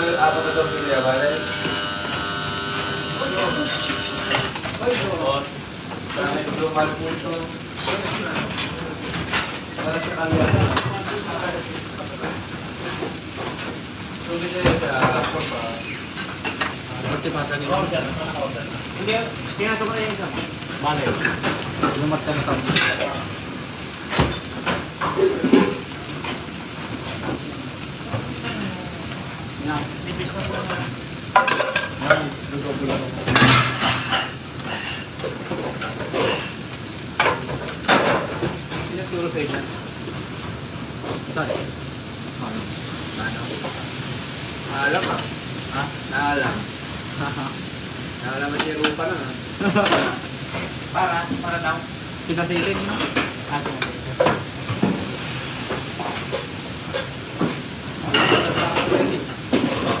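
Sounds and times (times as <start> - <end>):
kitchen utensils clinking: 0.0 - 13.8, 19.1 - 23.4, 24.0 - 27.4, 30.1 - 39.8, 48.4 - 50.8, 52.3 - 60.0
food sizzling in a pan: 0.0 - 60.0
metal pots and pans clanking: 7.8 - 11.3, 31.4 - 32.3, 32.9 - 36.6, 55.8 - 60.0.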